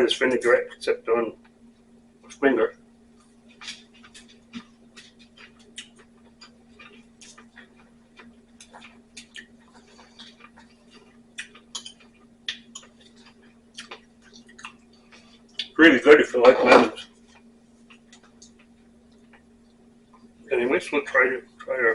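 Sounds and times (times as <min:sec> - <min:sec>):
faint steady hum: 0:00.0 - 0:21.9
chewing: 0:03.2 - 0:15.8.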